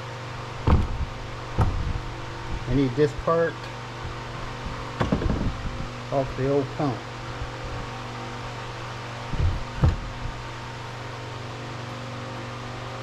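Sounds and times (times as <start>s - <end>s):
steady mechanical hum: 0.0s - 13.0s
dull thumps: 0.6s - 2.7s, 5.0s - 5.7s, 9.3s - 10.4s.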